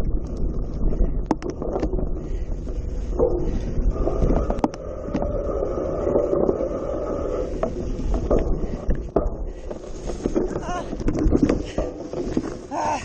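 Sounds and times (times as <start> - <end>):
bike rattling over bumps: 0.0 - 4.7, 7.6 - 13.0
wind buffeting microphone: 0.0 - 13.0.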